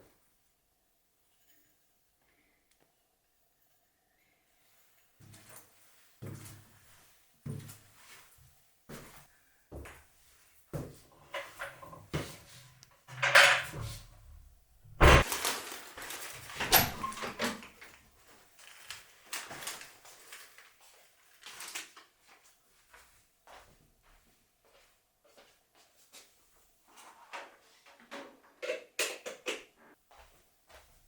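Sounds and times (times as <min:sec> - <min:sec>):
household knocks and clatters: 0:13.0 - 0:14.1, 0:14.9 - 0:15.6, 0:16.5 - 0:17.7.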